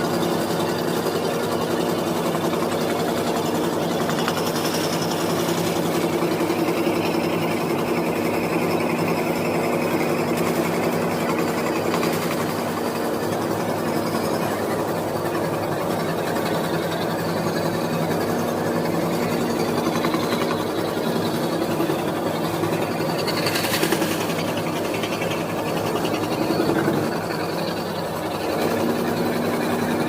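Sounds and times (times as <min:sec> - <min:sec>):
scroll saw cutting wood: 0:02.4 - 0:14.6, 0:18.9 - 0:28.0.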